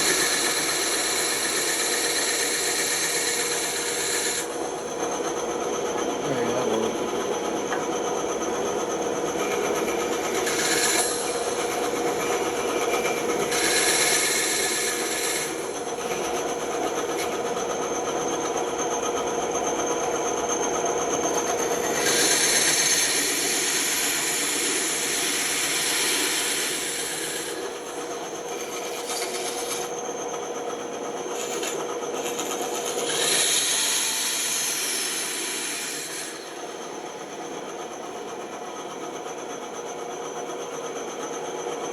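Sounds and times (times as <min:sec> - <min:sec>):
saw blade cutting wood: 0:00.0 - 0:04.6, 0:09.4 - 0:17.6, 0:21.3 - 0:30.0, 0:31.3 - 0:36.8
bandsaw humming: 0:00.0 - 0:18.6, 0:21.1 - 0:30.0, 0:31.3 - 0:37.0.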